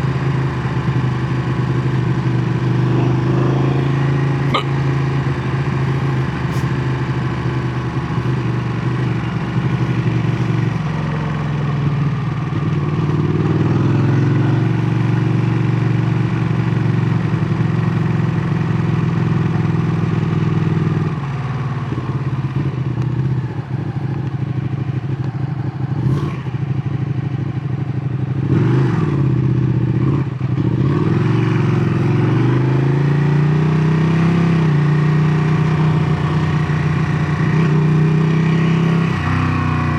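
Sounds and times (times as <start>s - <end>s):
motorcycle engine exhaust note: 0.0s - 15.2s.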